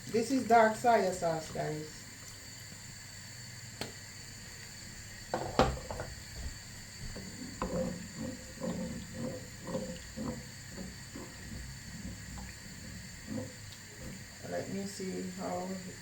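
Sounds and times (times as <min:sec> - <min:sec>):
spoon stirring sauce in a pot: 0:05.4 - 0:14.3.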